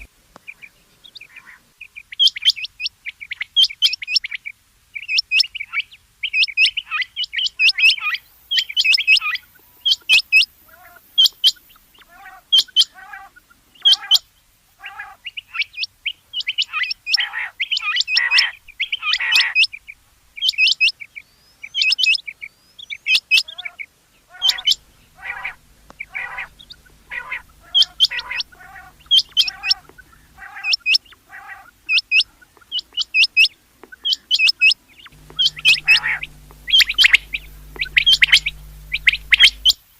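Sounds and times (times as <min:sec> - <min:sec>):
quail calling: 0:24.3 - 0:31.7, 0:35.2 - 0:39.8
lower bird notes: 0:24.4 - 0:30.4, 0:35.2 - 0:39.8.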